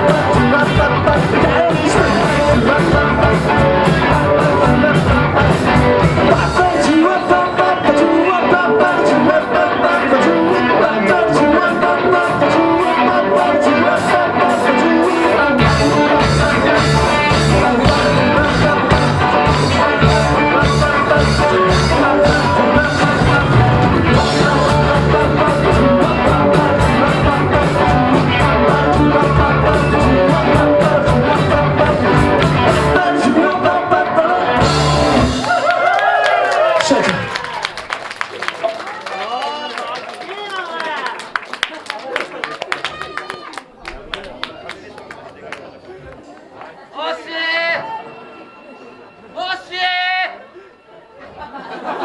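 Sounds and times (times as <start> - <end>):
person singing: 0.0 - 35.8
bass guitar: 0.0 - 35.9
electric guitar: 0.0 - 37.9.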